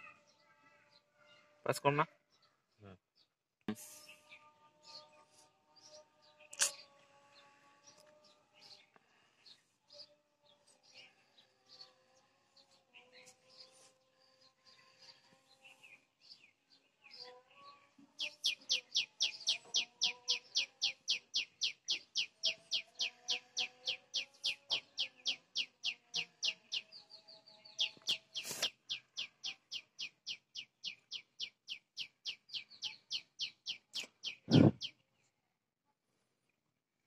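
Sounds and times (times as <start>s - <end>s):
bird chirping rhythmically: 18.1s - 35.0s.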